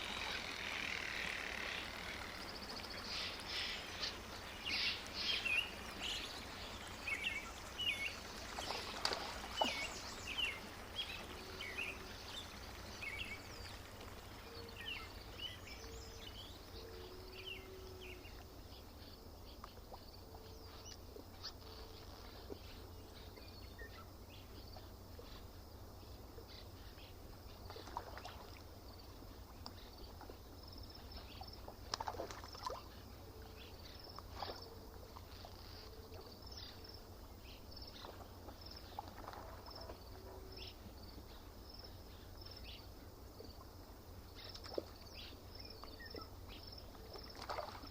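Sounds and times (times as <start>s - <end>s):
small birds chirping: 0.0s - 21.6s
faint low background noise: 0.0s - 47.9s.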